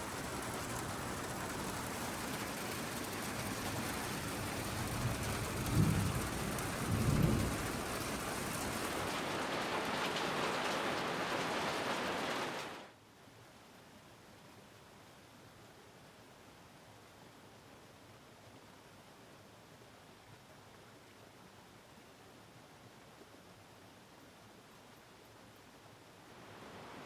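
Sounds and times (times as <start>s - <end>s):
thunder rumbles: 0.0s - 11.4s
heavy rain: 0.0s - 12.9s, 26.2s - 27.0s.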